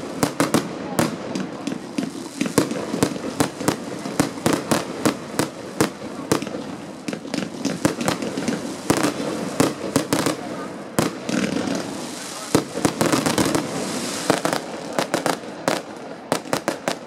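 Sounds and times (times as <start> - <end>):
fireworks bangs: 0.0 - 17.0
fireworks crackling: 0.0 - 17.0.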